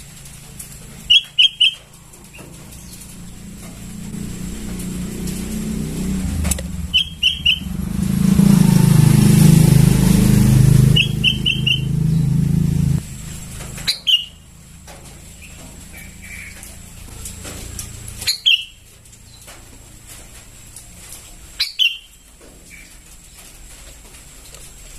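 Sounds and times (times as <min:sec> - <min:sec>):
loud engine hum: 0:00.0 - 0:18.5
bird chirping: 0:01.1 - 0:03.3, 0:06.3 - 0:12.7, 0:13.8 - 0:14.4, 0:18.2 - 0:19.4.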